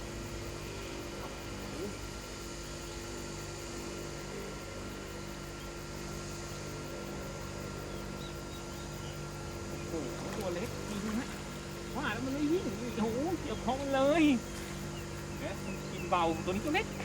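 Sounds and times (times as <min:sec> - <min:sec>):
motor running steadily: 0:00.0 - 0:17.0.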